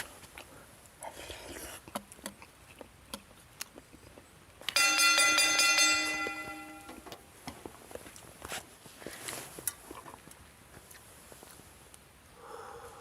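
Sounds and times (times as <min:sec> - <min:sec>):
bell-like chime: 0:04.8 - 0:07.0.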